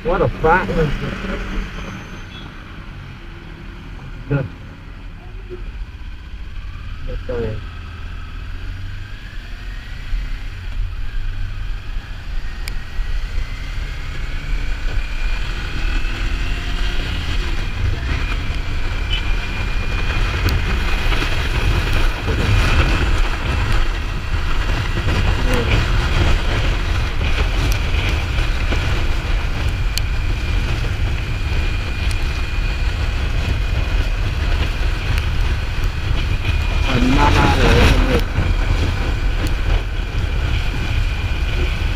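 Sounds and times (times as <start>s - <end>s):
motorcycle engine at speed: 0.0s - 41.9s
wind rush on microphone: 8.9s - 41.9s.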